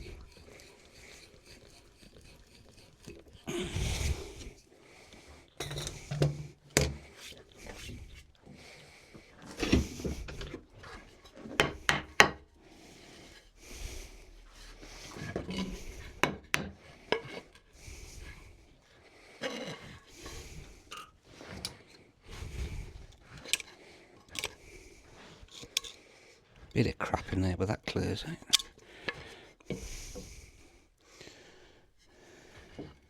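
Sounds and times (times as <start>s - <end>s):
wood rubbing and scraping: 0.0s - 4.7s, 5.6s - 26.0s
wood knocks and clicks: 11.4s - 12.4s.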